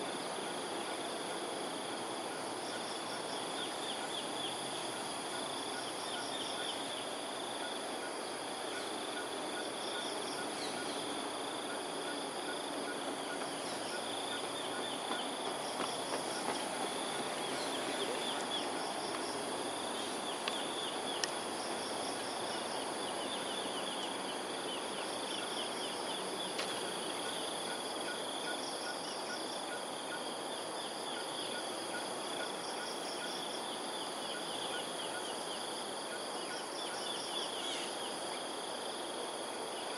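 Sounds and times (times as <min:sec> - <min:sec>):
high insect drone: 0:00.0 - 0:39.9
insect trilling: 0:16.3 - 0:30.2.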